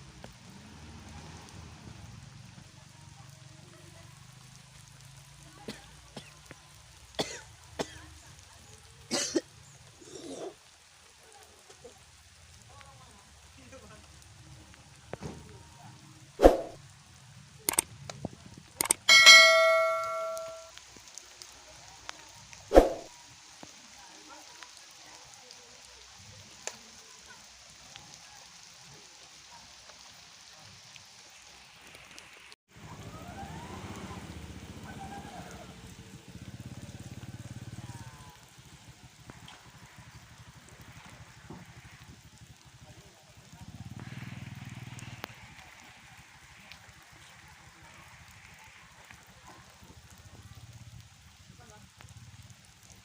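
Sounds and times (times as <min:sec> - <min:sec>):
metal struck and ringing: 0:19.1 - 0:20.7.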